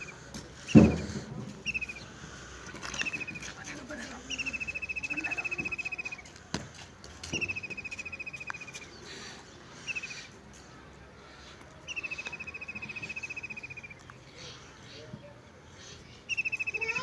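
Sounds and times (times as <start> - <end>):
songbird trilling: 0.0 - 2.1, 2.8 - 3.6, 4.3 - 6.3, 7.4 - 9.0, 9.8 - 10.3, 11.9 - 14.0, 16.2 - 17.0.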